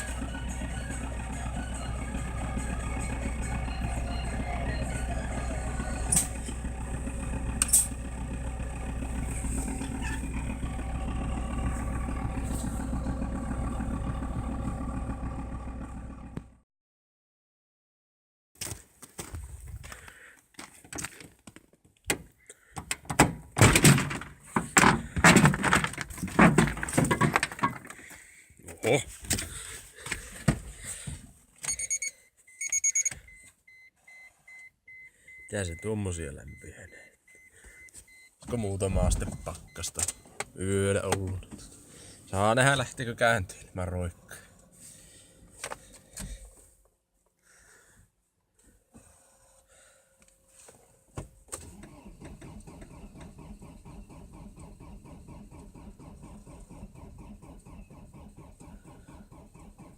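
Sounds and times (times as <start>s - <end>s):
diesel engine running: 0.0s - 16.6s, 24.0s - 28.4s, 38.6s - 46.6s
car warning chime beeps: 2.8s - 6.2s, 31.6s - 40.6s.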